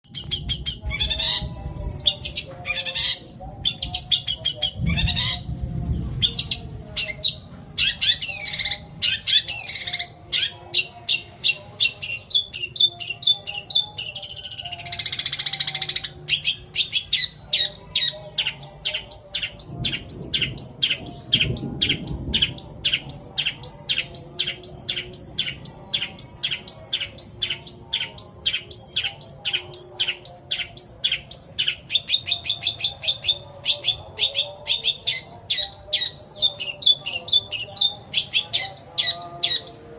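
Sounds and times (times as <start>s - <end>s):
bird song chirps and twitters: 0.0s - 39.9s.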